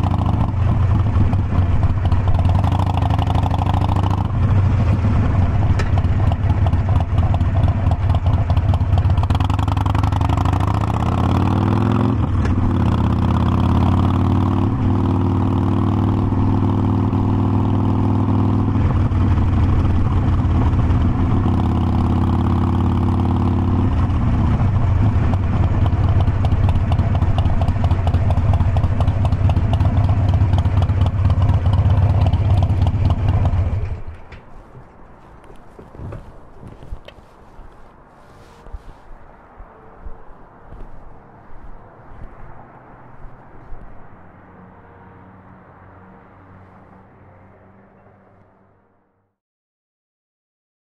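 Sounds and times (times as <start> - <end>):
motorcycle engine running: 0.0 - 34.4.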